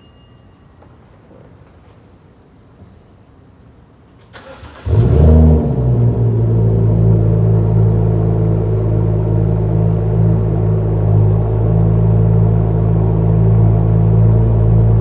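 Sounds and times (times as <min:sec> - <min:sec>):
car engine revving and idling: 0:04.5 - 0:15.0.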